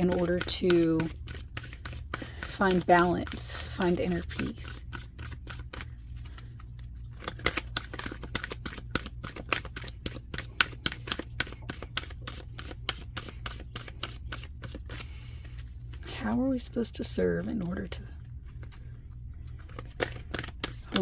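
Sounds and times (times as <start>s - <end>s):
cards being shuffled: 0.0s - 16.4s, 17.6s - 21.0s
steady low hum: 0.0s - 21.0s.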